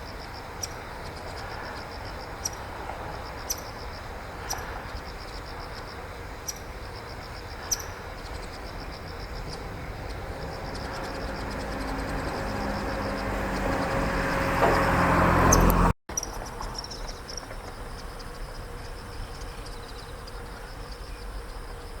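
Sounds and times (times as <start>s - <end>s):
passing vehicle rumble: 0.0s - 16.8s
insects trilling: 0.0s - 22.0s.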